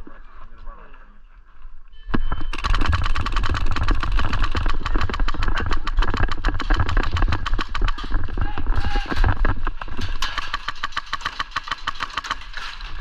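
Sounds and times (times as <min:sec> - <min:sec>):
airsoft gun firing full-auto: 0:02.5 - 0:08.0.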